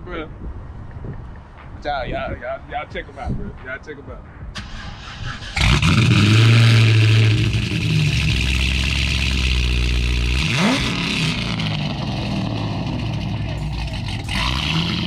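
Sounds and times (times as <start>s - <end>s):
car engine revving loudly: 5.5s - 15.0s.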